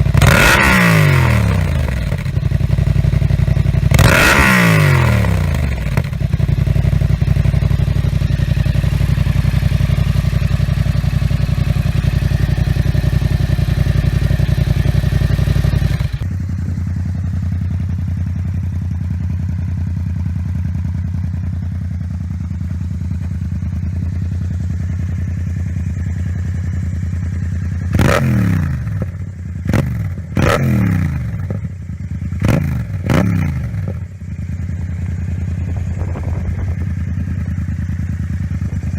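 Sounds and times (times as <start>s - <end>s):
motorcycle engine idling: 0.0s - 38.9s
motorcycle throttle blips: 21.6s - 38.9s.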